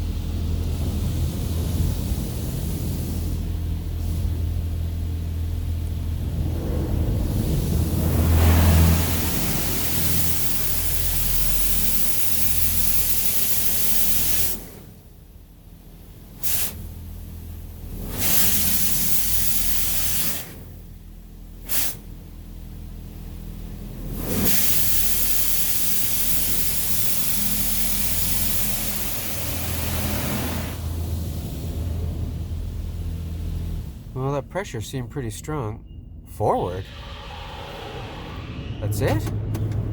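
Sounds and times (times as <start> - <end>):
high-pressure water jets spraying: 7.2 - 14.8, 16.4 - 16.8, 18.0 - 20.6, 21.7 - 22.1, 24.1 - 31.7.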